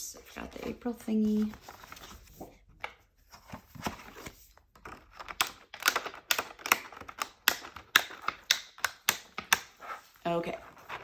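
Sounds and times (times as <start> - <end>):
planner pages clicking onto discs: 3.8 - 9.8.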